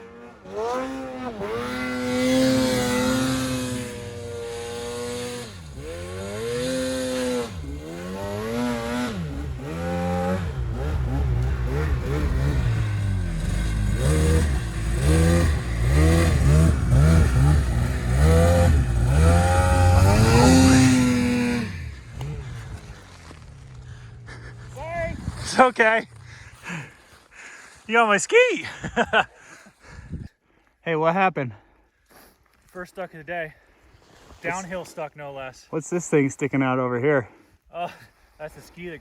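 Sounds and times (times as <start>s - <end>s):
snowmobile engine revving: 0.0s - 27.0s, 34.4s - 37.0s.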